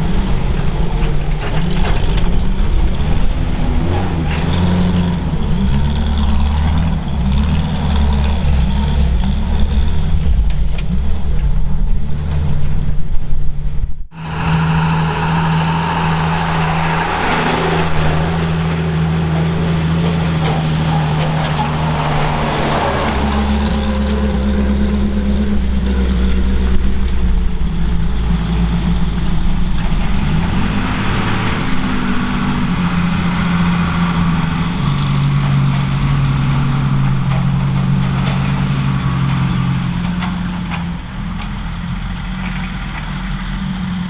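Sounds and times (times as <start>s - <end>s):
heavy vehicle engine idling: 14.1s - 44.0s.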